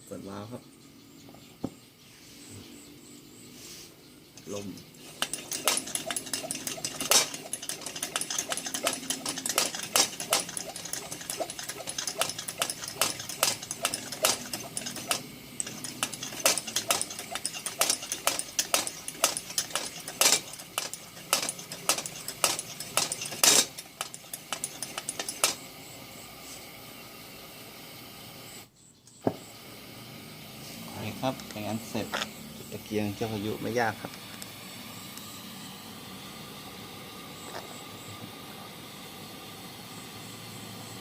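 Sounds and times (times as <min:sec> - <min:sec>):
pressure lantern hissing: 0:03.8 - 0:41.0
hand air pump clicking: 0:04.4 - 0:25.6.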